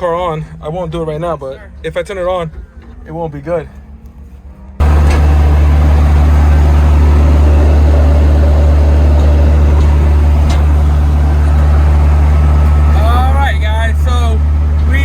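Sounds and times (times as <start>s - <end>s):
car engine and road noise: 4.8s - 15.0s.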